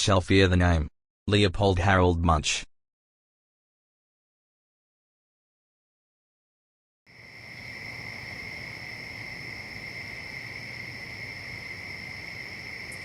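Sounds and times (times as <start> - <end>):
crickets chirring: 7.1 - 13.0.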